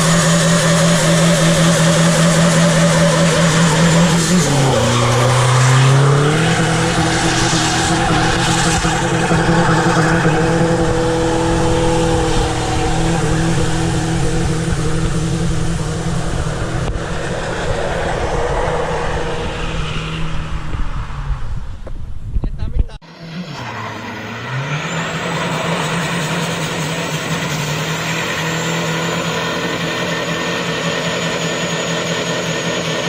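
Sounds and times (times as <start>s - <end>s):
tyres spinning and squealing: 0.0s - 15.2s
diesel engine revving high: 0.0s - 21.8s, 23.0s - 33.0s.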